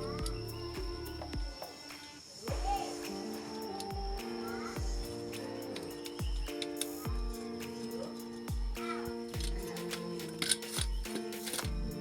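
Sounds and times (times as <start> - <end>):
deep falling bass-drum hits: 0.0 - 1.5.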